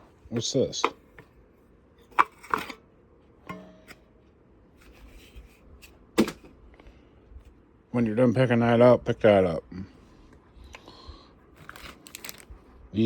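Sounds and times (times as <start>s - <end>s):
packaging rustling: 11.6s - 12.5s.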